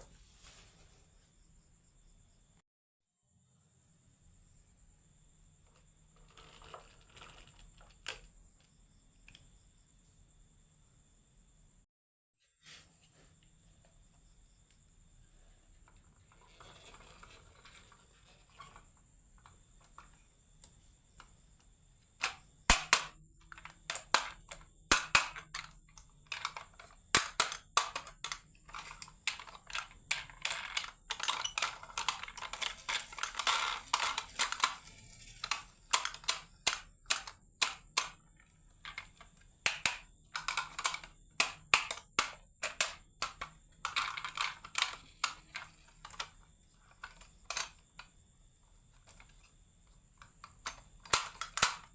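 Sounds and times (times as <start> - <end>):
marbles clacking on marble run: 26.3 - 38.2.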